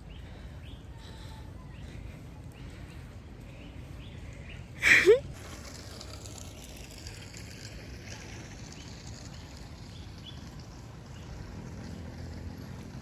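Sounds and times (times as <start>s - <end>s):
rain ambience low rumble: 5.4s - 13.0s.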